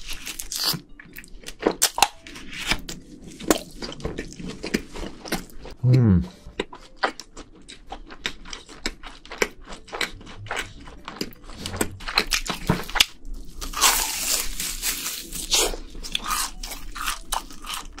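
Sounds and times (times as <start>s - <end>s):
crunching crispy fried food: 0.0s - 1.1s, 6.8s - 18.0s.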